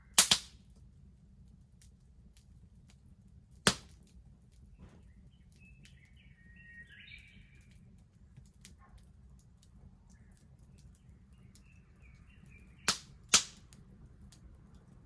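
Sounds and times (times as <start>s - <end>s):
loud snaps of burning wood: 0.0s - 0.9s, 1.8s - 4.9s, 7.7s - 14.9s
bonfire crackling: 0.0s - 15.0s
faint birds chirping: 4.2s - 15.0s.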